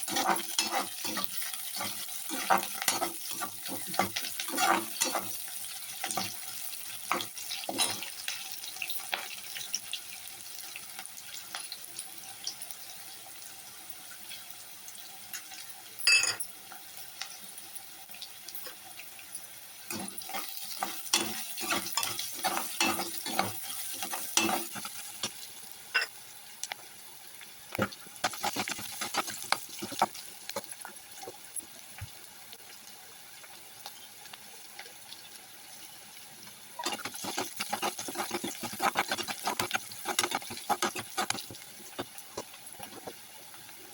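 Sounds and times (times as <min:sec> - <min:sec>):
spoon stirring and scraping pan: 0:00.0 - 0:09.7, 0:19.9 - 0:26.2, 0:27.7 - 0:32.1, 0:36.5 - 0:43.3
vegetables sizzling in a pan: 0:00.0 - 0:43.9.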